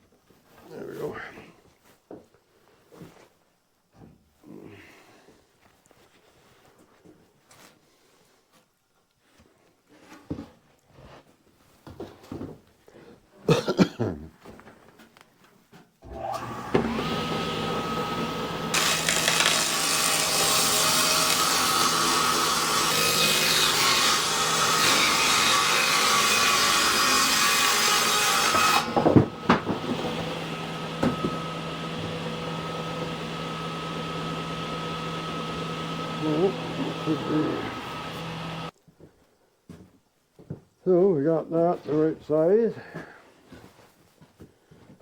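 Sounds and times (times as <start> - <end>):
table saw motor humming: 16.0 - 38.7
saw blade cutting board: 16.1 - 38.7.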